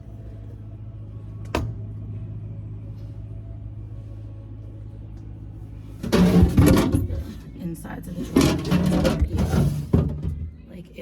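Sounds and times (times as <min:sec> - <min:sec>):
low hum: 0:00.0 - 0:11.0
plastic drawer scraping out: 0:06.0 - 0:07.5, 0:08.2 - 0:10.4.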